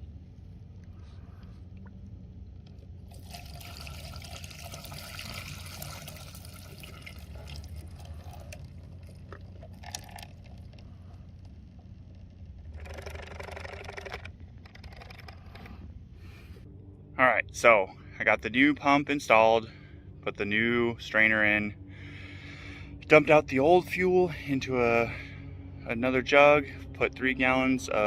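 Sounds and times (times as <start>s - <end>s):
gasoline pouring in a stream: 3.1s - 10.8s.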